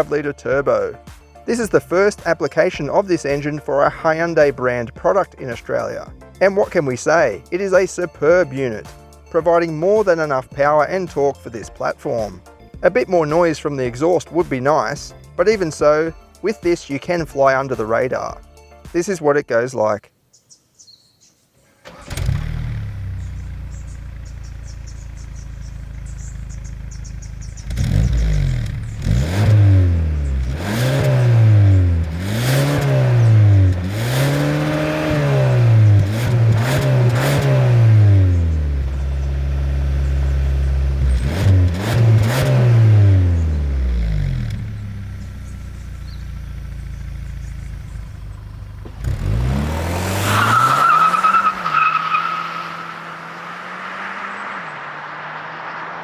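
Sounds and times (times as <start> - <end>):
car engine revving: 21.8 - 56.0.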